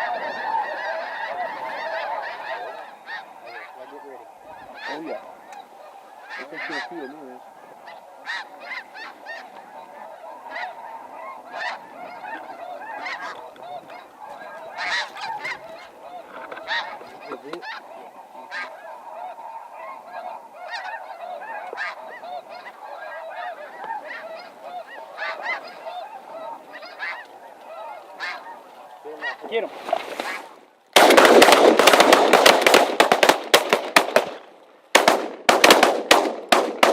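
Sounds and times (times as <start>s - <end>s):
geese honking: 0.0s - 36.9s.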